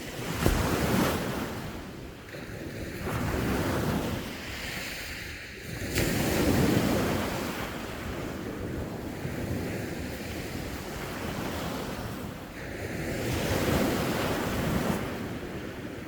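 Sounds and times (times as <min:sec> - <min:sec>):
sea waves washing onto shore: 0:00.0 - 0:16.0.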